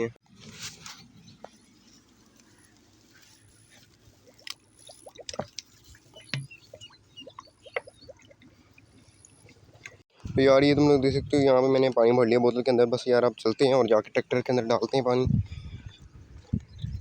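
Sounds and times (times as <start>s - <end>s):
bottle gurgling while filling: 4.1s - 10.0s.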